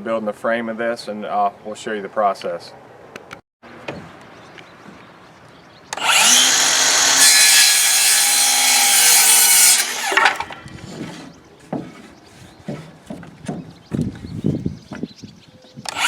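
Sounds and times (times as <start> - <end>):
electric saw cutting wood: 5.9 - 10.6
wood knocking: 10.0 - 14.1.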